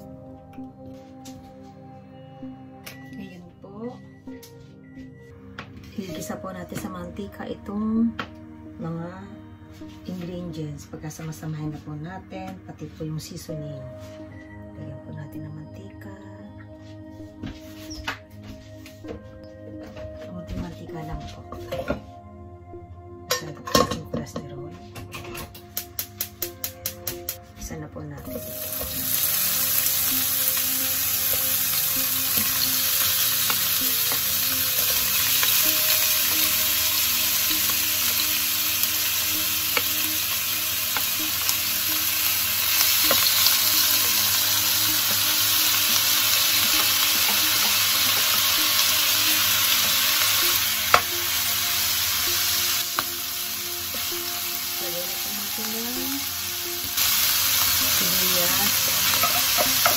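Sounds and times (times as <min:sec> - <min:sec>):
chicken sizzling in a wok: 0:28.3 - 0:59.9.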